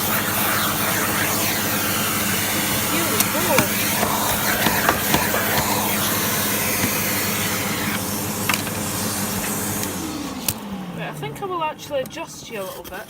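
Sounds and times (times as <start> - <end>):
vacuum cleaner running: 0.0 - 13.0
light knocks on casing: 3.5 - 5.9.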